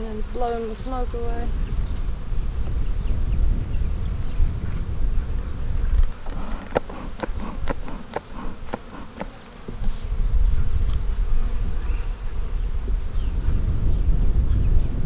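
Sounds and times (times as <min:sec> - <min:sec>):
honeybees buzzing: 0:00.0 - 0:15.0
wind rumbling on microphone: 0:00.0 - 0:15.0
quick uneven ticks: 0:06.0 - 0:09.5.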